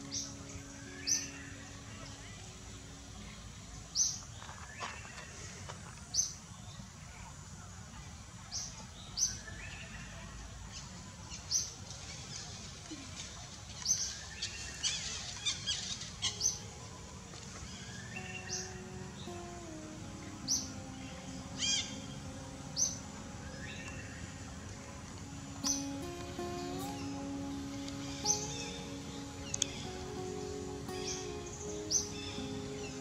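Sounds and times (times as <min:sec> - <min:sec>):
birds calling: 0:00.0 - 0:05.3, 0:14.8 - 0:33.0
steady low background noise: 0:00.0 - 0:33.0.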